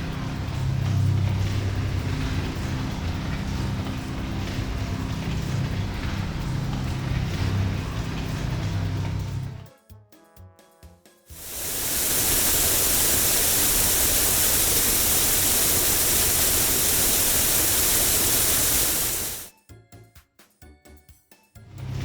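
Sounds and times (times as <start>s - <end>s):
car wash rushing hiss: 11.4s - 19.5s.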